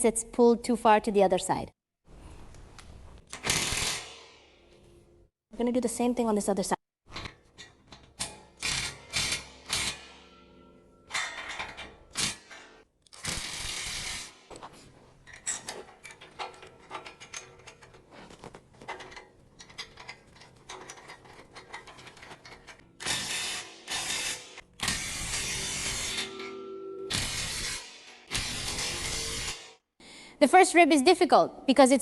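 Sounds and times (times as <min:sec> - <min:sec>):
metal clicks and knocks: 0:11.1 - 0:12.8, 0:15.2 - 0:22.9.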